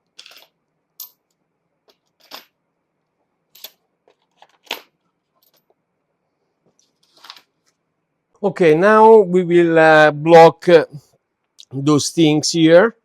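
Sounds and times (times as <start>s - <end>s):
metal parts clicking and knocking: 0.2s - 2.5s.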